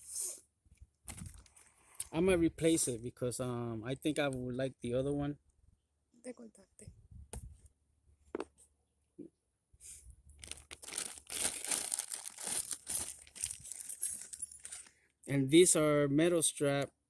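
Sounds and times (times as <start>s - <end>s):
plastic packaging crinkling: 1.0s - 1.8s, 10.3s - 14.9s.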